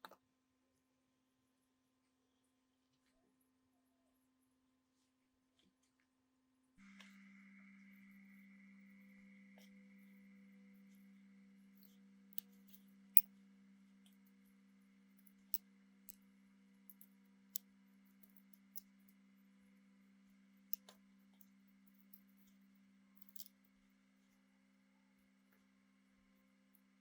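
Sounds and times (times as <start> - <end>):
steady low hum: 6.8 - 27.0.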